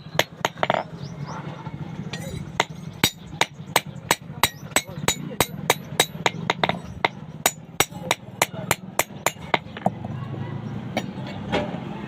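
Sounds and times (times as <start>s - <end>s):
hammer striking metal on anvil: 2.1s - 9.9s.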